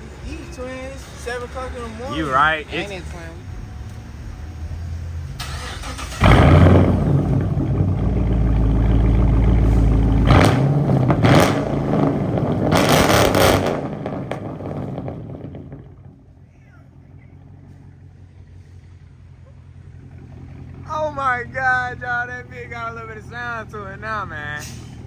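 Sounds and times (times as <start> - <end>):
engine revving: 0.0 - 16.3
car engine starting and idling: 0.0 - 25.0.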